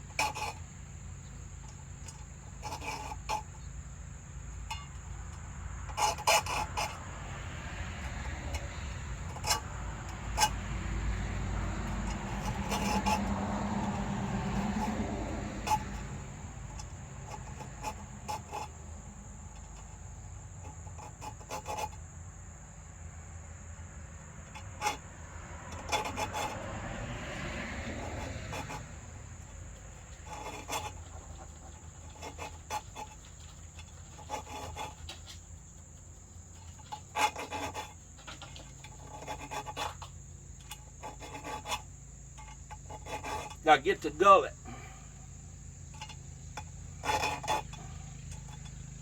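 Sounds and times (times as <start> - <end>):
file scraping saw blade teeth: 0.1 - 0.6, 1.7 - 3.5, 4.7 - 18.8, 19.5 - 22.0, 24.6 - 35.6, 36.4 - 44.4, 45.9 - 49.0.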